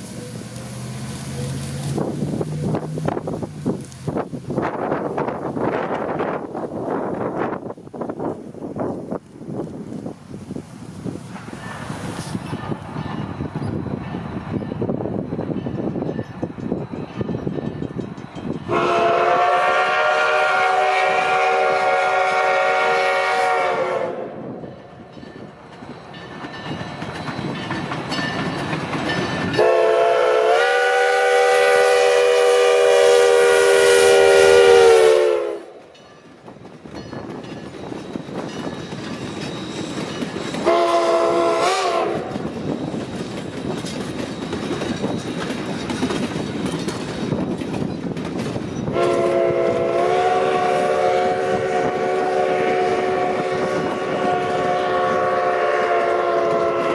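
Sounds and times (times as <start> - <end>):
train rumbling past: 0.0 - 56.9
steam locomotive whistle: 18.7 - 24.6, 29.5 - 35.9, 40.5 - 42.4, 48.9 - 56.9.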